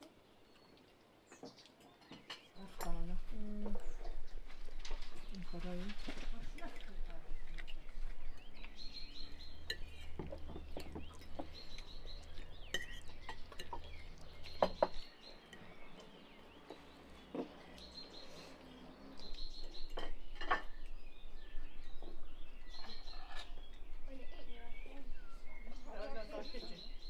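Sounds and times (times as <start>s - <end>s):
small birds chirping: 0.0s - 27.0s
cutlery clinking on plates: 1.3s - 3.0s, 9.4s - 15.7s, 19.7s - 20.9s, 22.8s - 23.7s.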